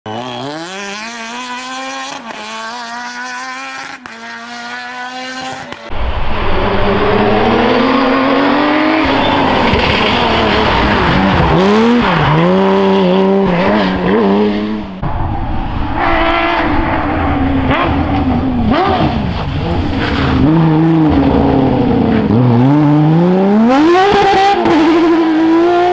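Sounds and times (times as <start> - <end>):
rally car engine revving: 0.1 - 25.9
road noise: 0.1 - 25.9.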